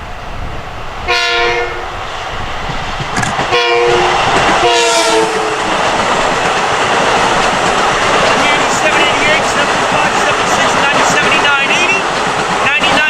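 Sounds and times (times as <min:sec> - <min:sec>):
train passing rush: 0:00.0 - 0:13.0
multi-tone train horn blasts: 0:01.1 - 0:01.9, 0:03.5 - 0:05.8.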